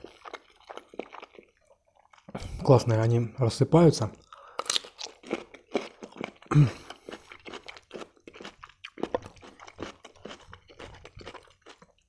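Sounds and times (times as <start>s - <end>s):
person chewing food: 0.0s - 2.5s, 4.2s - 12.0s.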